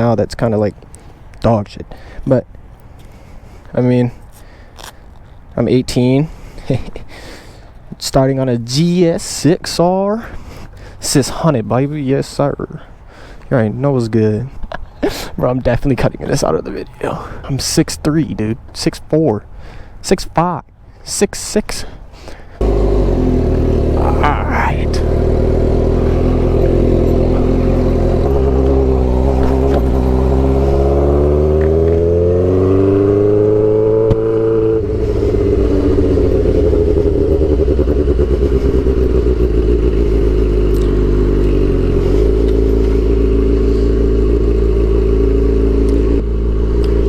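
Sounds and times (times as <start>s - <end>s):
motorcycle engine accelerating: 22.6s - 47.0s.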